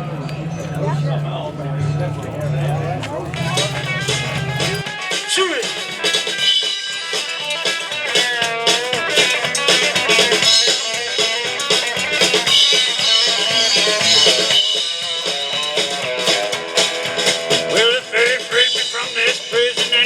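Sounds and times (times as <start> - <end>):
bass guitar: 0.0 - 20.0
drums: 0.0 - 20.0
electric guitar bending notes: 0.9 - 20.0.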